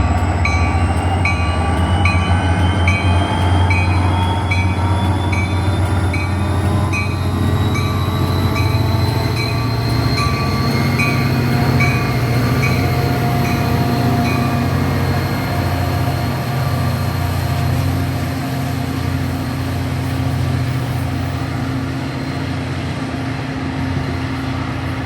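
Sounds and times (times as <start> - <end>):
train rumbling: 0.0 - 25.0
train whine rising in pitch: 0.0 - 25.0.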